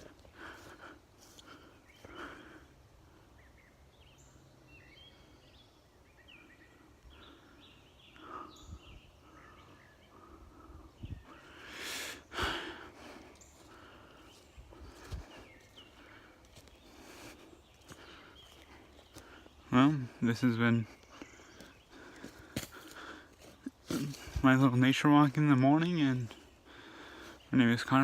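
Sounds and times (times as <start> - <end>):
small birds chirping: 0.0 - 28.0
footsteps: 13.1 - 19.4, 21.1 - 24.8.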